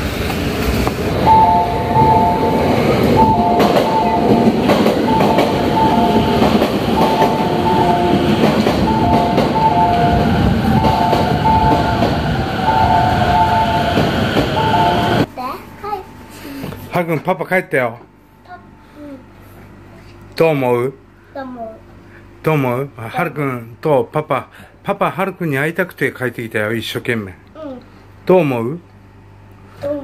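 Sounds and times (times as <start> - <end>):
commuter train rumbling past: 0.0 - 15.4
two-note chime: 1.2 - 6.4.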